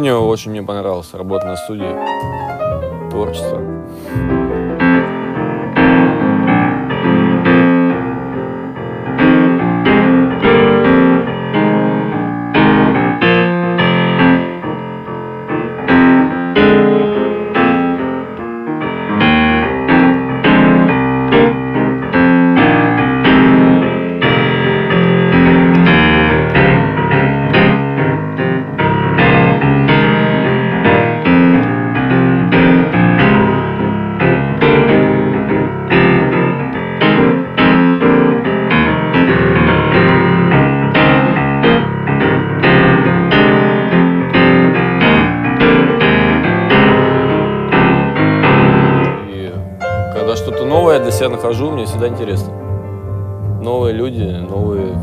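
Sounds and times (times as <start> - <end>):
jazz piano: 0.0 - 55.0.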